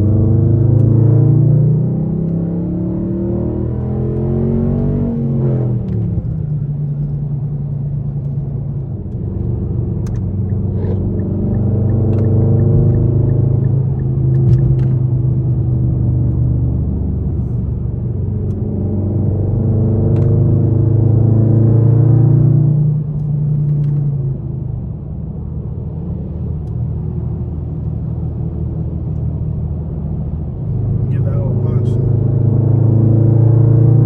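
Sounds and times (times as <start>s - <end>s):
car exhaust droning: 31.0s - 33.5s.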